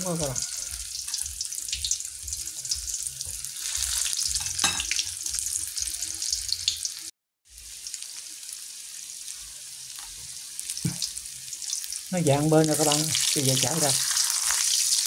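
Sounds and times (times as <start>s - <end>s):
tofu sizzling and crackling in oil: 0.0s - 15.0s.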